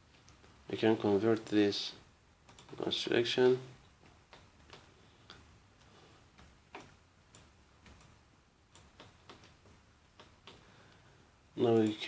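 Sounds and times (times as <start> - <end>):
computer mouse and keyboard clicks: 2.4 - 2.8, 4.0 - 10.6.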